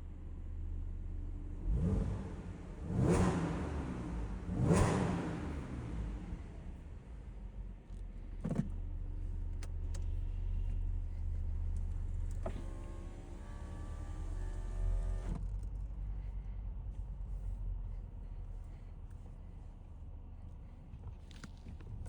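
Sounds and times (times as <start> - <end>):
car engine drone: 0.0 - 22.0
road noise inside car: 0.0 - 22.0
power window motor whining: 12.3 - 15.5.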